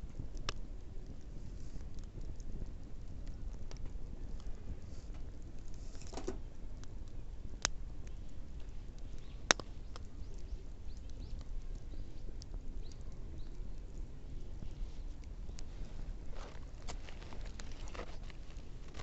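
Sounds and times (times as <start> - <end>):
low steady fire rumble: 0.0 - 19.0
wood bonfire crackling: 0.0 - 19.0
sharp fire pops: 8.6 - 13.5.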